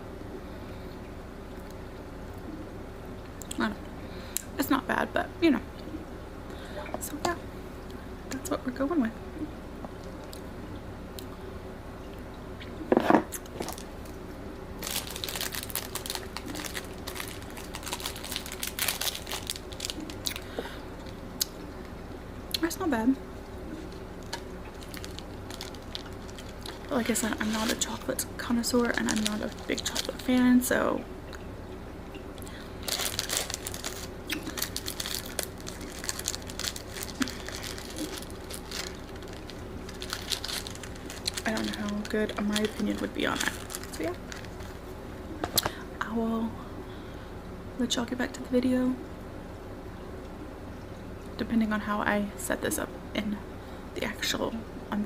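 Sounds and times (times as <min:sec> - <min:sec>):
chocolate wrapper crinkling: 0:13.5 - 0:14.2, 0:14.8 - 0:20.5, 0:23.8 - 0:30.7, 0:32.5 - 0:44.8.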